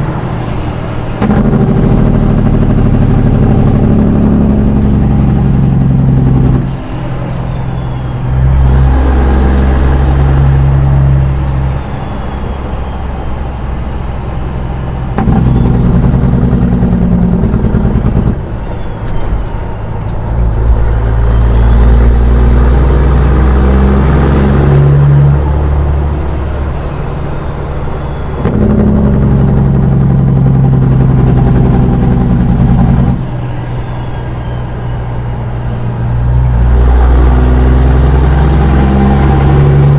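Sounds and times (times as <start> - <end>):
high whistle: 0.0 - 1.5, 6.6 - 19.9, 20.9 - 29.2, 31.7 - 39.9
truck diesel engine pulling: 0.0 - 39.9.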